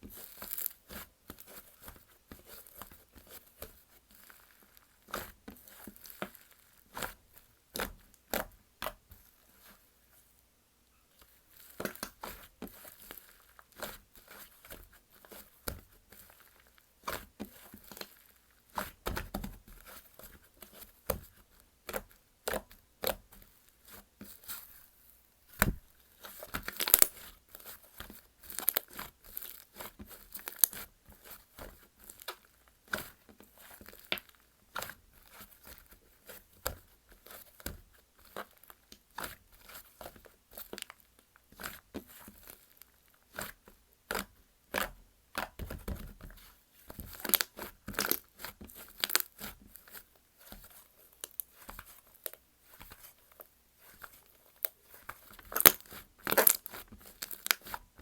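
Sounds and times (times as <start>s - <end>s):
slime squished by hand: 25.5s - 27.8s, 54.9s - 57.8s.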